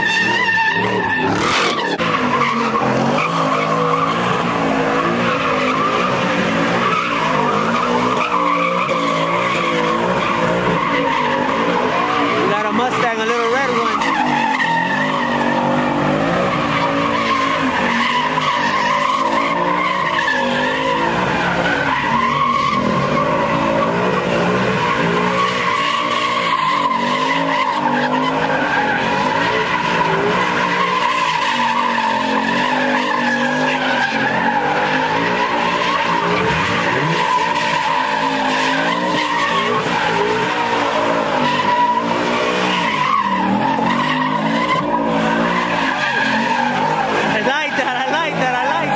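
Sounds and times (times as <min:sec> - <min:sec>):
car engine revving: 0:00.0 - 0:48.9
tyres screeching: 0:00.0 - 0:48.9.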